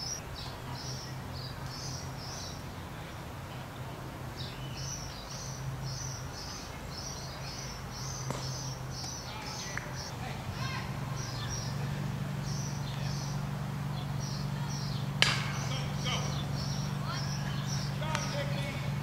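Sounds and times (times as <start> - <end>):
steady low hum: 0.0 - 19.0
bird chirping high notes: 4.6 - 19.0.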